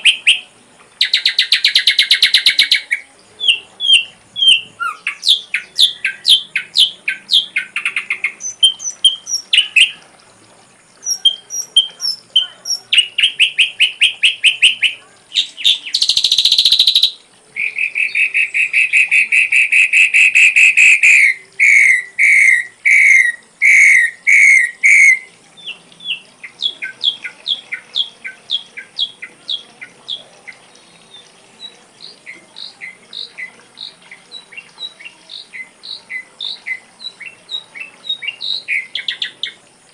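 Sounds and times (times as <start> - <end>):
bird singing varied phrases: 0.0 - 10.1, 10.8 - 39.9.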